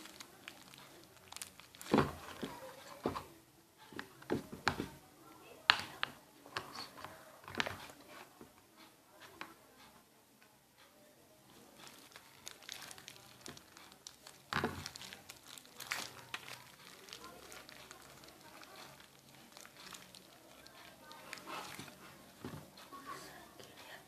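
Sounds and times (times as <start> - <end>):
plastic bottle clicking and crinkling: 0.0 - 3.3, 5.7 - 8.0, 11.8 - 22.8.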